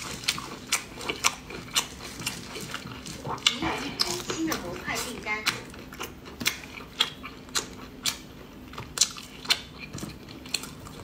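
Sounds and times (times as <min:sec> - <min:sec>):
wet smacking chewing clicks: 0:00.0 - 0:11.0.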